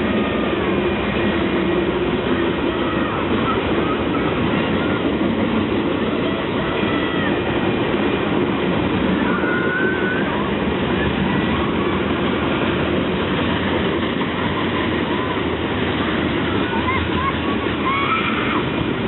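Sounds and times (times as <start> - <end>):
train wheels rumbling on track: 0.0 - 19.0
faint high squeals: 9.2 - 10.5.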